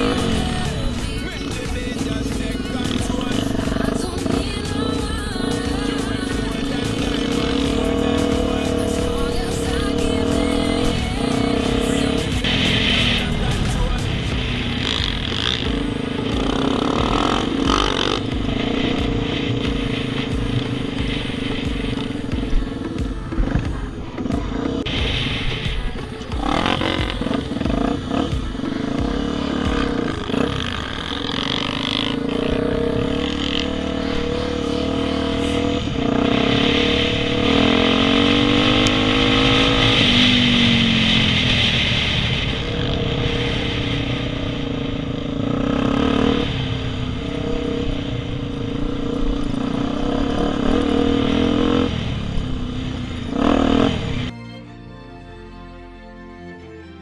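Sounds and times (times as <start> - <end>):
motorcycle clattering: 0.0 - 25.1
motorcycle engine revving: 0.0 - 54.3.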